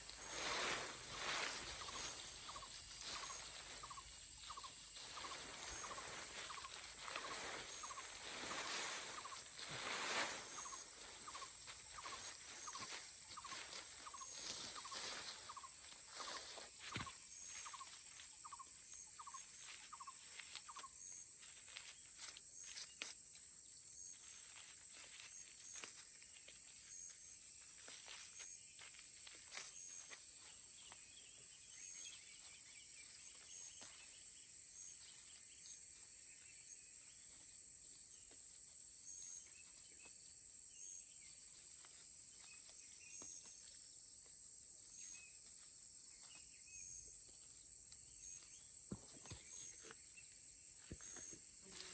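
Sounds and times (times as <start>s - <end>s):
rustling swishes: 0.0s - 15.6s.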